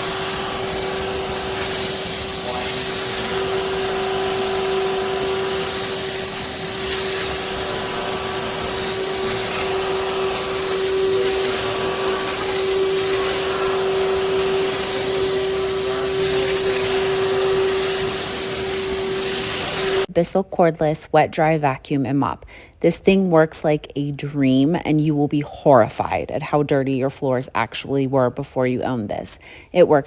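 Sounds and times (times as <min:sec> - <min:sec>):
suction air rushing: 0:00.0 - 0:20.1
vacuum mop motor hum: 0:00.0 - 0:20.1.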